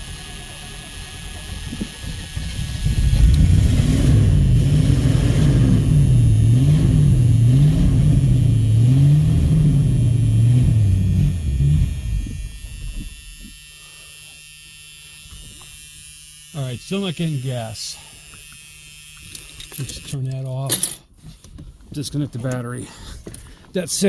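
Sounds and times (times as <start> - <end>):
car engine running unevenly: 0.0 - 13.0
faint hum: 0.0 - 15.8.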